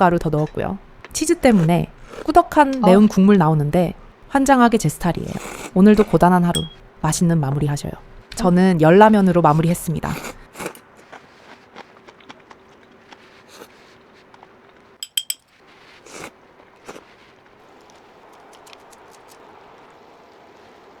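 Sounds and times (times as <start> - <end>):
ringing tableware clink: 6.5 - 6.8, 15.0 - 15.5
tableware tapping and clicking: 6.5 - 6.8, 15.0 - 15.6.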